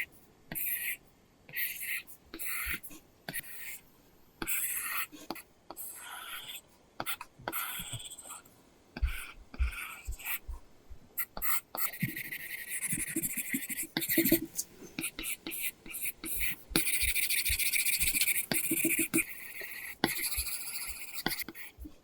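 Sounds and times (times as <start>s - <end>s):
stylus scratching on screen: 4.4s - 10.6s, 11.2s - 22.0s.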